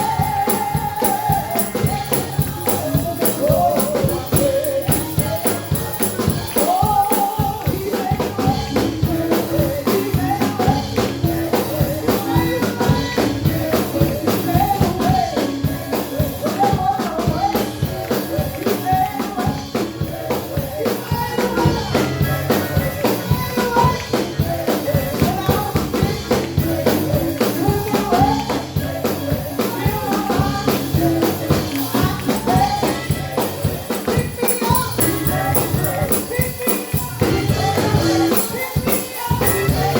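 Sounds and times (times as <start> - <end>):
tambourine shaking: 0.0 - 8.4, 22.1 - 39.9
drums: 0.0 - 39.9.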